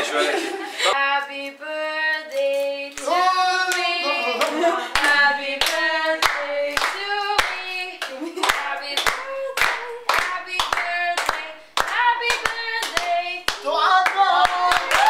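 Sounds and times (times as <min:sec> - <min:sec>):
person singing: 0:00.8 - 0:15.0
hands clapping in a steady beat: 0:03.7 - 0:15.0.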